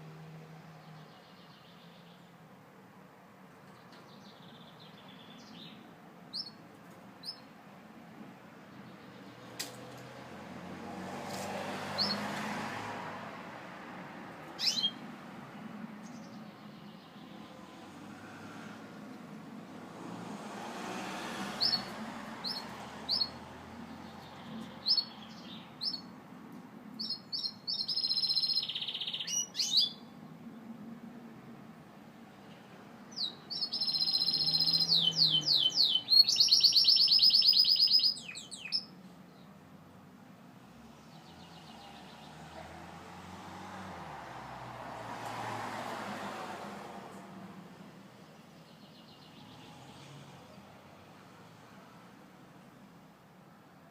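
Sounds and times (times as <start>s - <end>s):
canary chirping: 4.1s - 6.6s, 7.2s - 7.5s, 11.9s - 12.3s, 14.5s - 15.1s, 21.6s - 26.1s, 27.0s - 30.1s, 33.1s - 38.9s.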